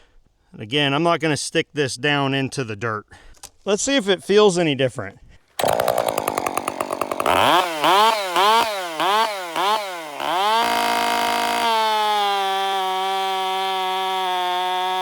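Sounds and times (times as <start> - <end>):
chainsaw cutting at full throttle: 5.6 - 15.0.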